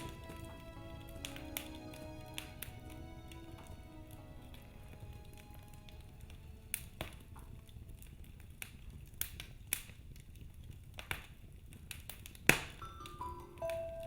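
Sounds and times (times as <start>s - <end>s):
soft background music: 0.0s - 8.6s, 12.8s - 14.0s
wood fire crackling: 0.0s - 14.0s.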